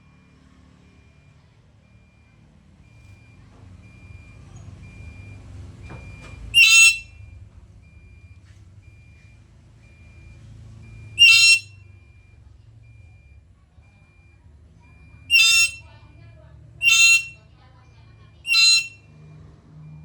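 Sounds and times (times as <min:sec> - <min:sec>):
parrot harsh screeches: 0:06.6 - 0:07.1, 0:11.2 - 0:11.7, 0:15.3 - 0:15.8, 0:16.8 - 0:17.4, 0:18.5 - 0:19.0.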